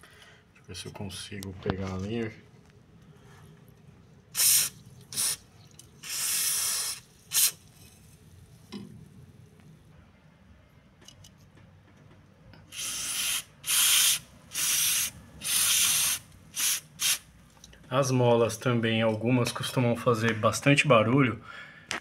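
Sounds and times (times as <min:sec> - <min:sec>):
aerosol can spraying in hissing bursts: 0:04.4 - 0:05.4, 0:06.0 - 0:07.6, 0:12.7 - 0:17.3.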